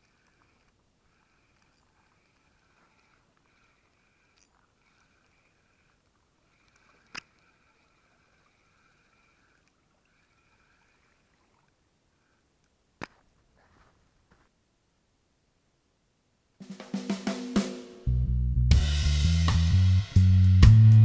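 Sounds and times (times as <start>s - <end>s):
fishing reel whirring: 0.0s - 12.4s
faint rustle: 0.0s - 14.9s.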